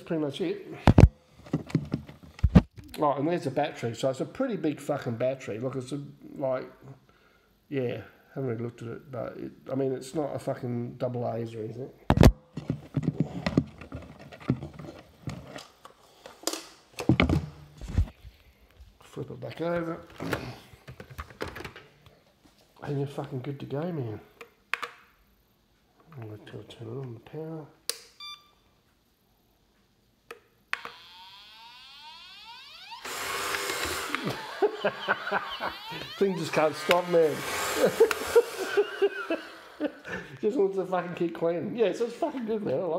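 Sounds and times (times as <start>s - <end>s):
plastic handling clicks and knocks: 0.9s - 2.8s, 12.1s - 15.7s, 20.1s - 21.9s
short electronic beep: 28.2s - 28.6s
vacuum motor whine: 30.8s - 39.9s.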